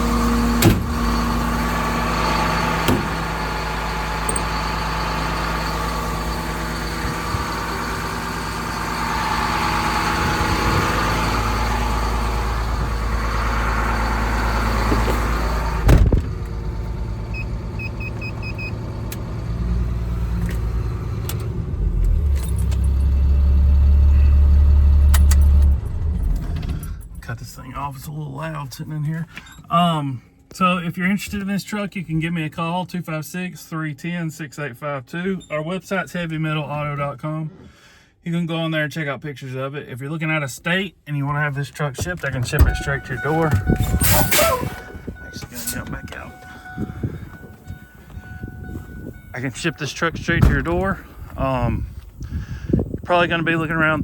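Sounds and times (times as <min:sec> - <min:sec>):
deep loud hum: 0:00.0 - 0:18.0, 0:42.3 - 0:54.0
diesel engine running: 0:00.0 - 0:27.6, 0:41.3 - 0:54.0
short high beeps: 0:42.7 - 0:49.3.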